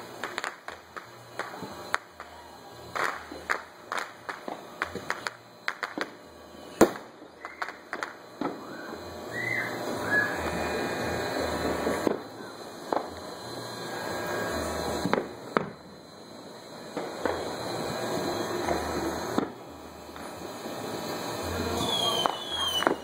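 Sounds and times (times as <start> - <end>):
fireworks bangs and pops: 0.0 - 8.7, 11.1 - 13.4, 14.7 - 15.8, 16.8 - 23.0
firework whistles: 0.0 - 23.0
fireworks crackling: 0.0 - 23.0.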